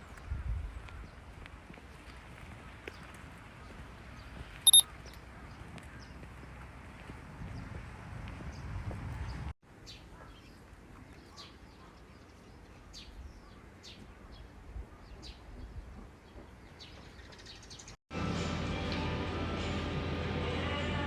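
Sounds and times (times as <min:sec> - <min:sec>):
small birds chirping: 0:02.9 - 0:06.2.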